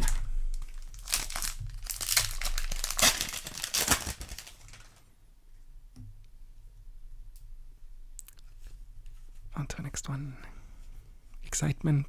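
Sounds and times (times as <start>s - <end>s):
wrapper crinkling and tearing: 0.0s - 5.1s.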